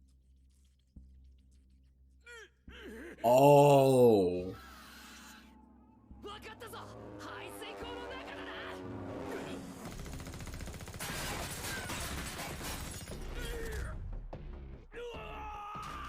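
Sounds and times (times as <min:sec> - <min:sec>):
character voices: 0:03.2 - 0:04.6.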